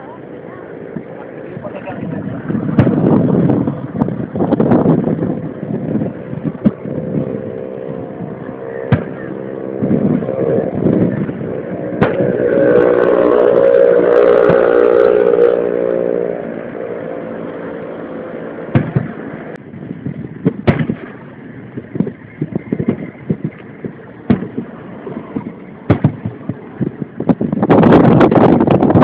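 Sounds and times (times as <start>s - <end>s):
loud steady-pitched sound: 0.0s - 29.0s
firework bangs: 2.4s - 7.4s, 8.9s - 9.4s, 10.8s - 15.9s, 18.6s - 19.4s, 20.2s - 29.0s
rapid crackling pops: 2.6s - 4.3s, 6.4s - 6.9s, 8.9s - 9.4s, 12.0s - 12.3s, 18.7s - 19.5s, 20.4s - 29.0s.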